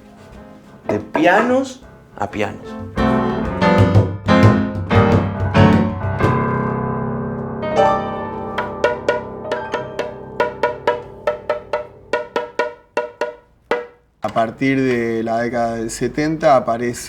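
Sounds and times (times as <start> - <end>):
piano music: 0.0 - 14.1.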